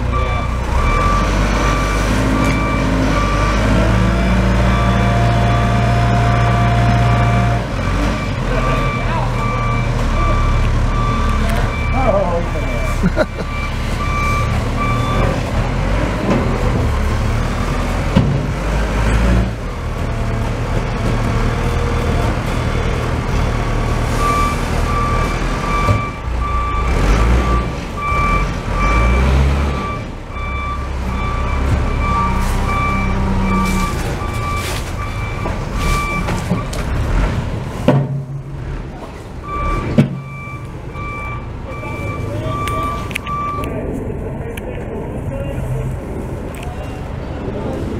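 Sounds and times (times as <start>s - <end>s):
heavy vehicle engine running: 0.0s - 47.9s
reversing alarm beeps: 0.1s - 15.4s, 24.2s - 36.7s, 39.4s - 43.8s.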